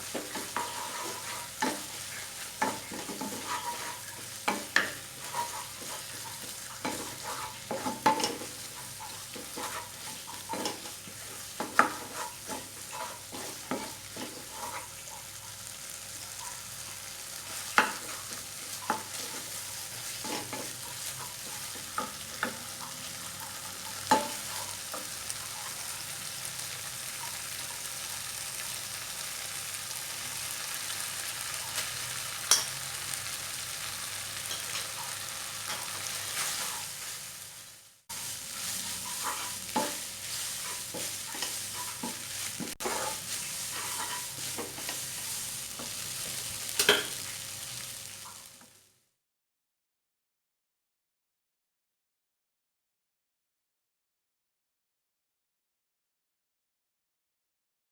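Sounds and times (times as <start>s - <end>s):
spatula scraping and knocking pan: 0.0s - 15.6s, 17.4s - 25.9s, 34.4s - 37.2s, 38.1s - 47.5s
noodles sizzling in a pan: 0.0s - 49.0s.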